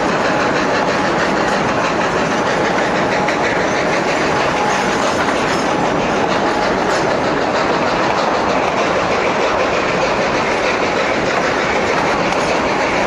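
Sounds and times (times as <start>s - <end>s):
train coaches rolling on track: 0.0s - 13.0s
wheels clicking over rail joints: 0.0s - 13.0s.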